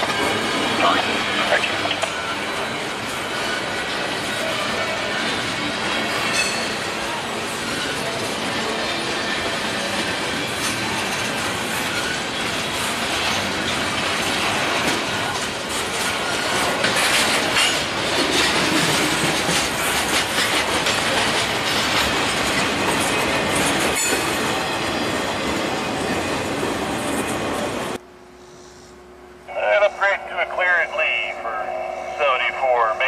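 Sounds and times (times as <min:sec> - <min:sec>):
freight train wheels rumbling: 0:00.0 - 0:28.3
wheels clattering over rail joints: 0:05.4 - 0:27.7.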